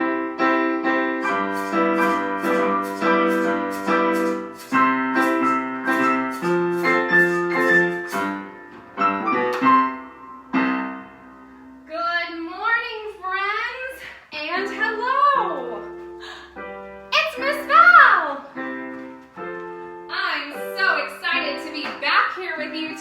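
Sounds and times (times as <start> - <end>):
solo piano music: 0.0 - 11.9, 14.6 - 23.0.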